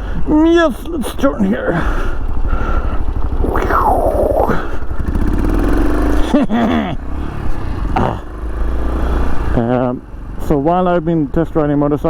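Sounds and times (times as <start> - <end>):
motorcycle engine running: 4.6 - 11.8.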